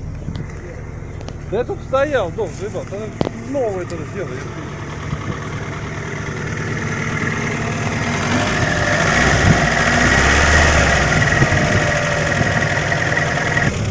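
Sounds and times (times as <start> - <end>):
high whine: 0.0 - 13.8
car engine running: 0.0 - 13.9.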